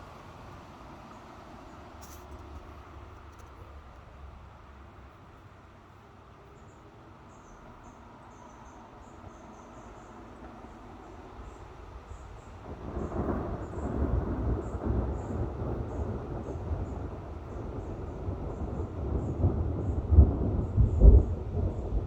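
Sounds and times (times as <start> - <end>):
faint insect chirping: 1.0 - 22.0
thunder rumbling: 12.3 - 22.0.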